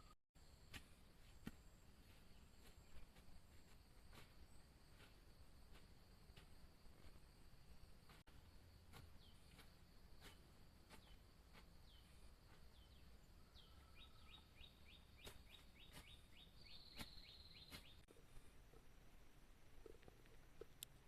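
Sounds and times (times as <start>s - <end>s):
faint bird calls: 11.8s - 18.5s
low steady hum: 18.1s - 21.0s.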